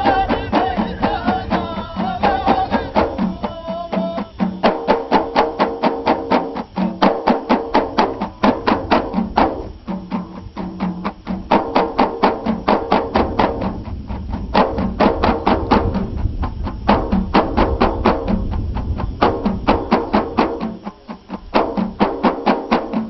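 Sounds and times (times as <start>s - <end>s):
chorus chanting in unison: 0.0s - 6.2s
fast percussion strikes: 0.0s - 23.0s.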